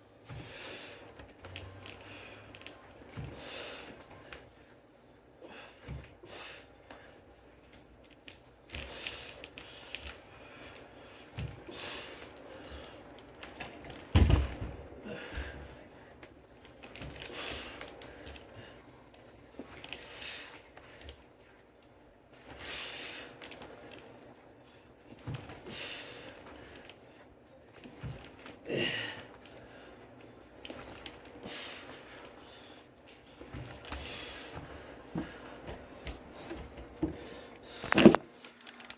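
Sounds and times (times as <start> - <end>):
person breathing hard: 14.9 - 16.2, 28.6 - 30.1.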